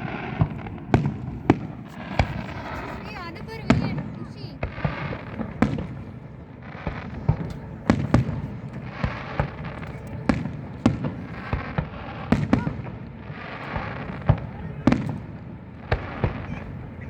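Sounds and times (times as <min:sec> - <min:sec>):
fireworks banging: 0:00.0 - 0:17.0
fireworks crackling: 0:00.0 - 0:17.0.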